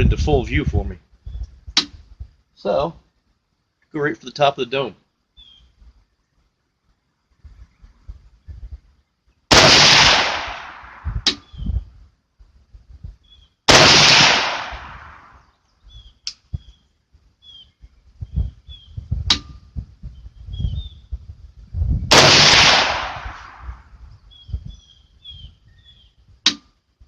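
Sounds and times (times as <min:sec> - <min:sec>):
rifle shots with echo: 0:09.5 - 0:11.5, 0:13.7 - 0:15.4, 0:22.1 - 0:23.9.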